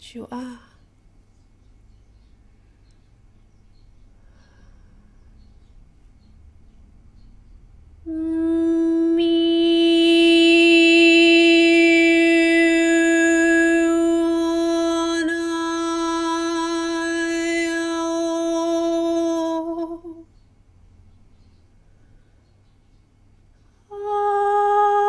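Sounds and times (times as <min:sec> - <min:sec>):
long sung vocal tone: 0:08.0 - 0:20.3, 0:23.9 - 0:25.0.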